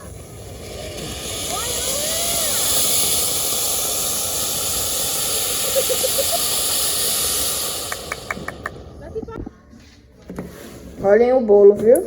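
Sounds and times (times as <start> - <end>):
loud hissing: 0.0 - 9.4.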